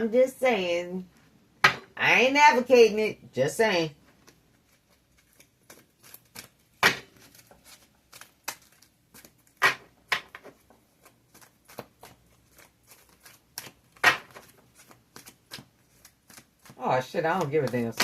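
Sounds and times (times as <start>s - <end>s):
cards being shuffled: 4.1s - 18.0s.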